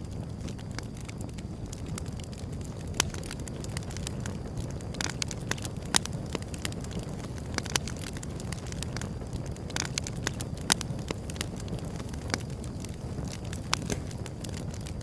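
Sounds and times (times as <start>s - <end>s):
low steady rumble: 0.0s - 15.0s
wood fire crackling and popping: 0.0s - 15.0s.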